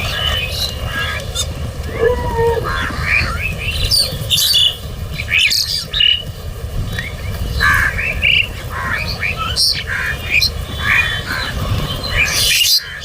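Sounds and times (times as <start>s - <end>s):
crows calling: 0.0s - 4.7s, 7.6s - 11.9s
low rumble: 0.0s - 5.4s.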